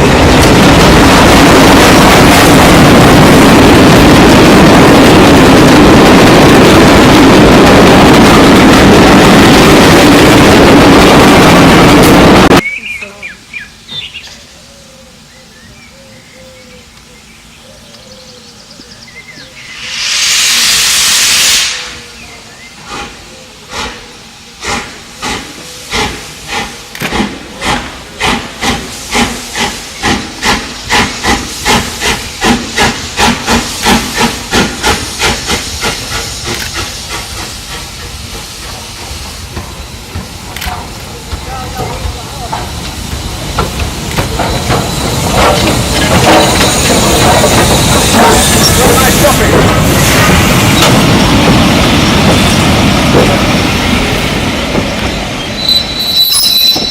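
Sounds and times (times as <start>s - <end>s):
steam hiss: 19.6s - 56.9s
steam locomotive exhaust beats: 19.6s - 56.9s.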